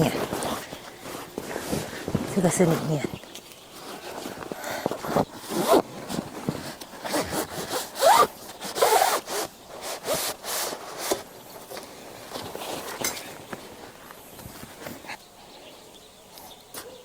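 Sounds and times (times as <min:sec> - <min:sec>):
zip being pulled: 0:04.6 - 0:11.2
fabric rasping and rubbing: 0:05.0 - 0:11.3.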